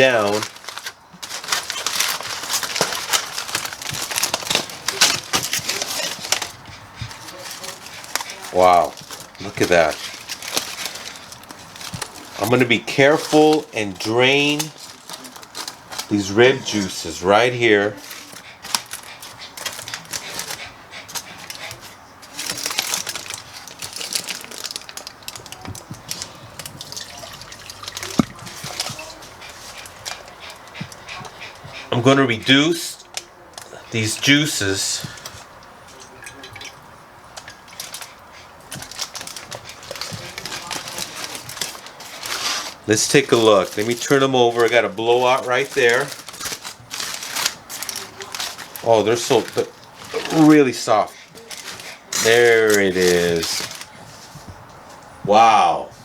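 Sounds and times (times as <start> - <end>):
aluminium foil crinkling: 0.0 - 55.5.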